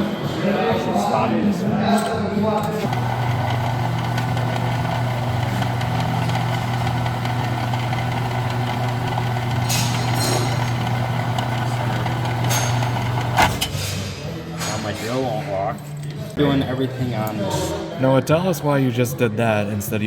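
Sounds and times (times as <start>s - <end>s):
drill press motor humming: 2.8s - 13.8s.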